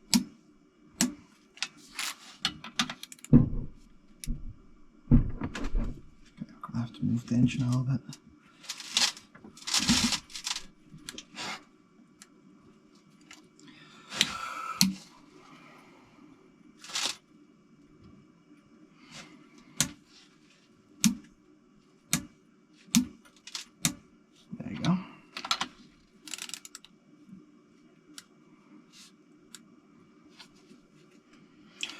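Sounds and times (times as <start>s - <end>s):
knocks and scrapes: 8.7s - 10.7s.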